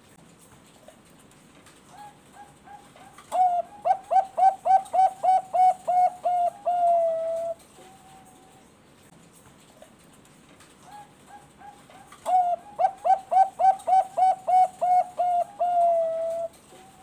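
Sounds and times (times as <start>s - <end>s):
dove cooing: 1.9s - 8.6s, 10.8s - 17.0s.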